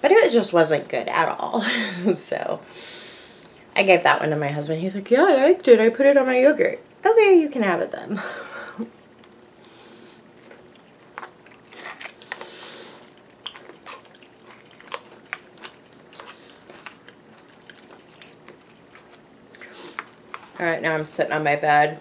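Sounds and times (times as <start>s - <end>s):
person chewing crunchy food: 9.2s - 20.6s.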